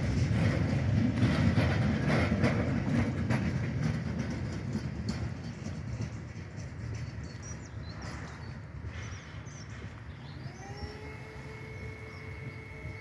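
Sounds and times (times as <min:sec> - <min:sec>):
freight train wheels clacking: 0:00.0 - 0:10.0.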